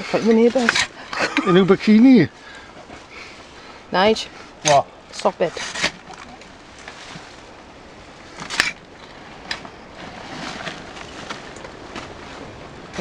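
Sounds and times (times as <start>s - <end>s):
low steady background noise: 0.0s - 13.0s.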